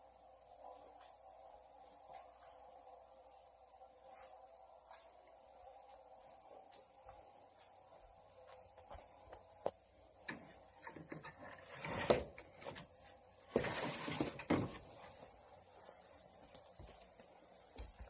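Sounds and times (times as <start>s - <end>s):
insects trilling: 0.0s - 18.0s
knocks and scuffs: 4.1s - 10.7s, 12.5s - 18.0s.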